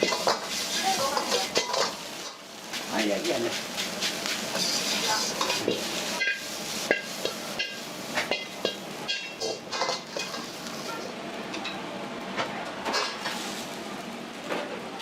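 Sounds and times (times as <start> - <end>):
light sizzling: 0.0 - 12.0, 12.9 - 14.4
metal ladle clanking on wok: 1.1 - 2.4, 4.5 - 10.5.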